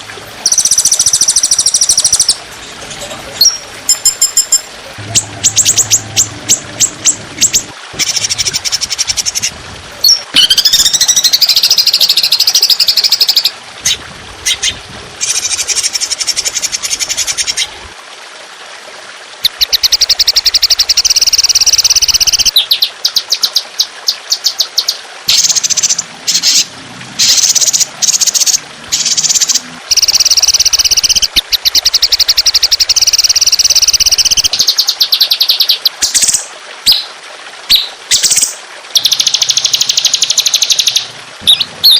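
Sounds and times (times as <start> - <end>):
songbird fast trills: 27.2 - 35.8.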